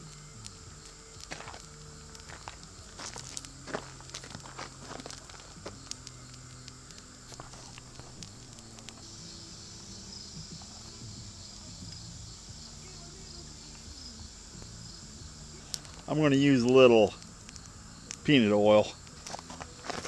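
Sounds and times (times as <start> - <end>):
sharp clicks: 0.0 - 9.1, 9.7 - 20.0
faint low hum: 0.0 - 20.0
high insect trill: 0.0 - 20.0.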